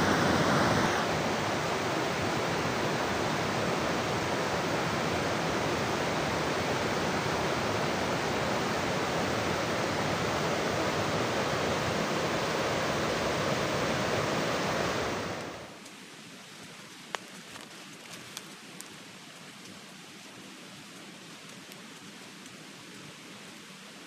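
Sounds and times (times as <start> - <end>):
loud rush of water: 0.0 - 17.1.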